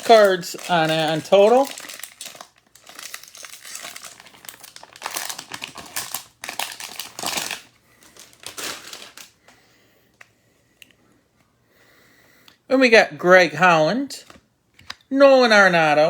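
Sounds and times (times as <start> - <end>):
foil wrappers tearing: 0.0 - 9.4.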